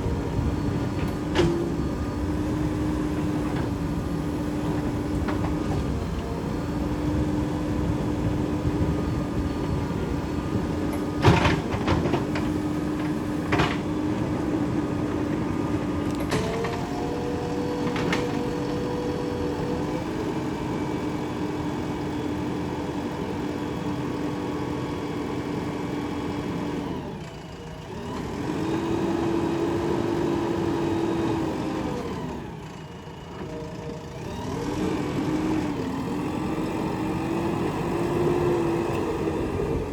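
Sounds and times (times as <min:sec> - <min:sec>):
backhoe diesel engine working: 0:00.0 - 0:39.9.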